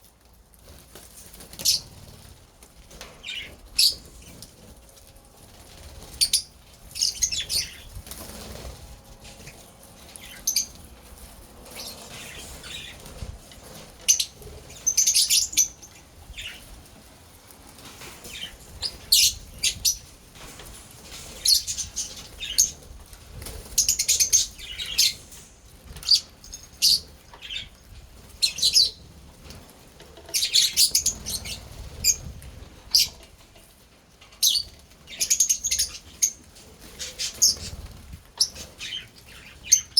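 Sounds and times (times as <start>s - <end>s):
lovebirds chirping: 11.6s - 16.8s, 23.4s - 29.0s, 30.3s - 32.3s, 37.0s - 39.9s.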